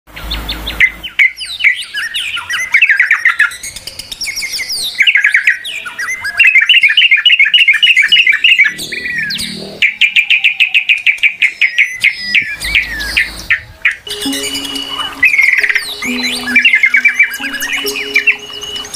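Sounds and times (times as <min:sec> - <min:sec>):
songbird chirping trills: 0:14.1 - 0:18.9.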